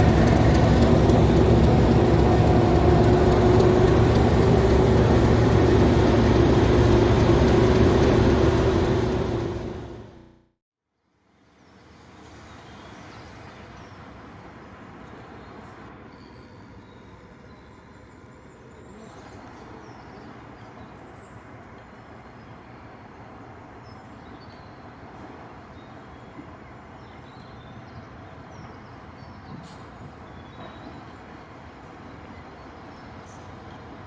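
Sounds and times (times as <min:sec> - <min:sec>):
diesel locomotive engine running: 0:00.0 - 0:10.4.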